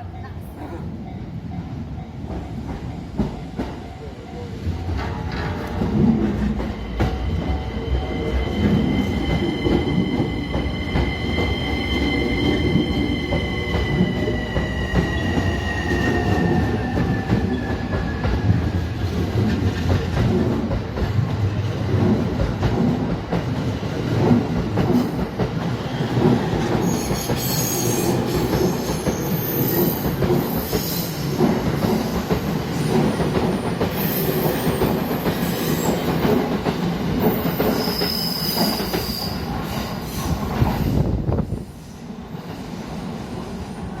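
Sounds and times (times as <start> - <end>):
train wheels rumbling on rails: 0.0 - 44.0
high-pitched wheel squeals: 26.8 - 31.1.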